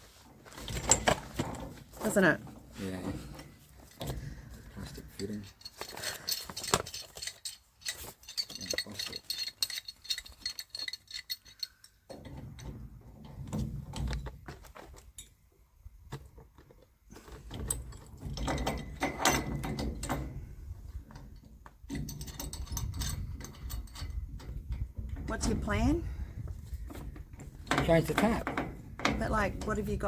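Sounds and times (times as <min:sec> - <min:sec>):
metal tools clinking on a tap: 0:05.1 - 0:12.7, 0:17.7 - 0:20.3, 0:21.9 - 0:24.6.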